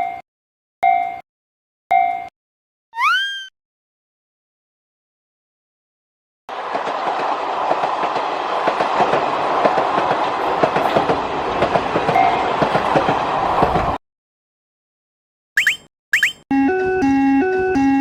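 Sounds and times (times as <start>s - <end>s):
rising whistle sound effect: 3.0s - 3.5s
train wheels clattering: 6.5s - 14.0s.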